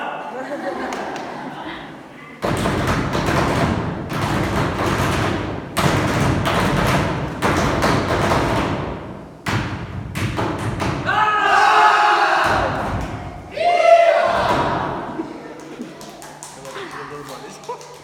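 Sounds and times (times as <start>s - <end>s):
group knocking and stomping rhythm: 2.4s - 11.2s, 12.4s - 13.6s, 14.3s - 18.0s.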